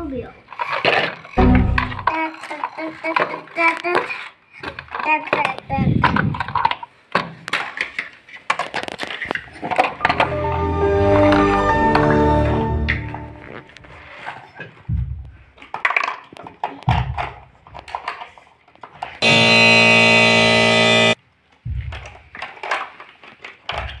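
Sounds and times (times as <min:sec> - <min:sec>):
plastic toys clattering: 0:00.0 - 0:12.2, 0:13.1 - 0:19.2, 0:21.8 - 0:24.0
loud buzzer tone: 0:19.2 - 0:21.2.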